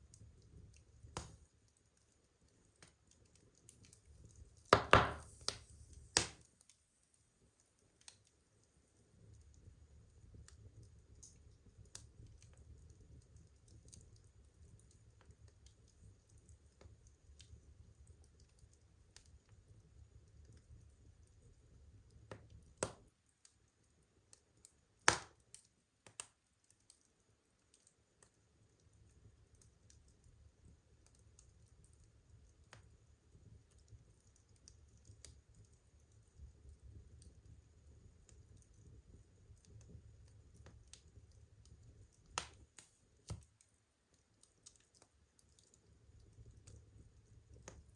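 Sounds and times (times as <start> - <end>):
low rumble of flame: 0.0 - 6.5, 7.7 - 23.0, 28.2 - 43.7, 44.4 - 47.9
fire crackling: 0.0 - 47.9
burning wood popping: 0.2 - 6.6, 25.0 - 27.0, 39.6 - 43.7.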